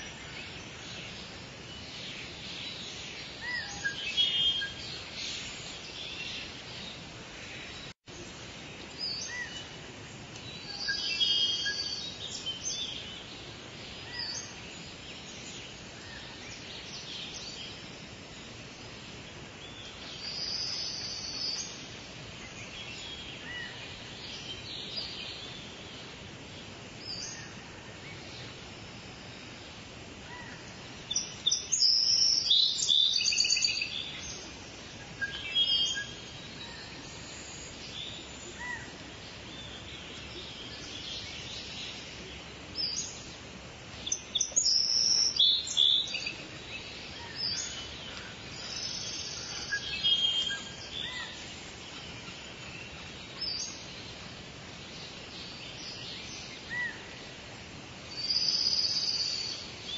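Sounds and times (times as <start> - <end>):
birds chirping and trilling: 0.0 - 59.9
steady hiss: 0.0 - 59.9.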